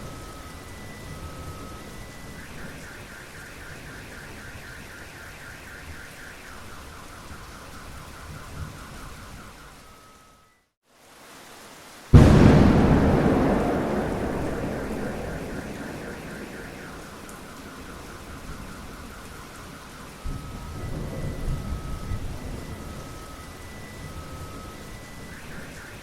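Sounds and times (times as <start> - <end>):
steady rain falling: 0.0 - 26.0
thunder rumbling: 12.1 - 19.6.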